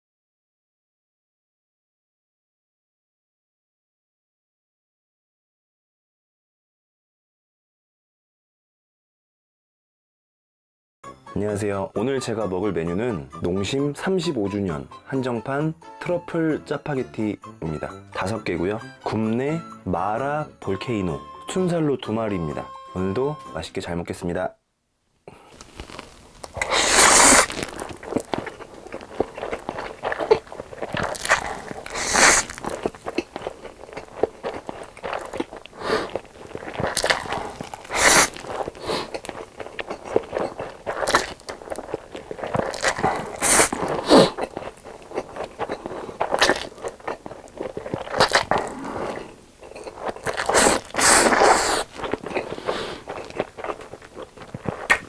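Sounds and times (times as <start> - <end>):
chewing: 25.6 - 55.0
crunchy bites: 25.6 - 55.0.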